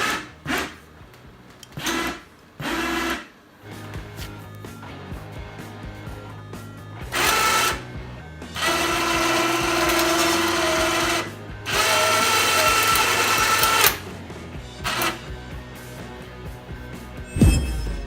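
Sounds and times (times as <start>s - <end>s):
electric winch motor running: 0.0s - 0.8s, 1.8s - 3.3s, 7.1s - 7.8s, 8.5s - 14.1s, 14.8s - 15.3s.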